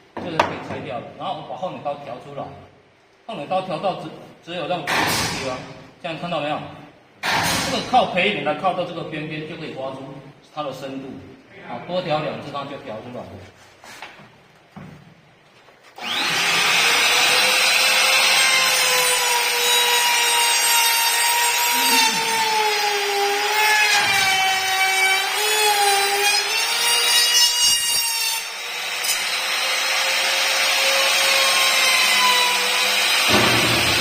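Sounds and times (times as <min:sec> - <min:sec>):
electric router whining: 0:16.0 - 0:18.4.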